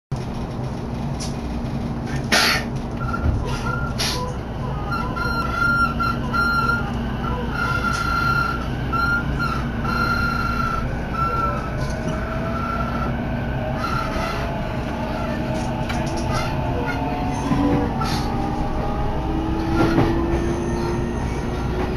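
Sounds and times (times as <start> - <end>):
train rumble: 0.1 - 21.9
traction motor whine rising: 4.6 - 21.9.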